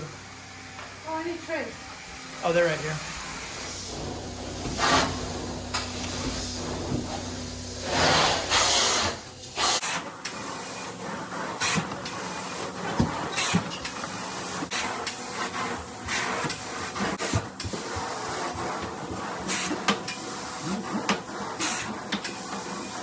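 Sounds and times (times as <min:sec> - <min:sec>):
low machine hum: 0:00.0 - 0:09.6
cleaning machine spraying hiss: 0:02.6 - 0:23.0.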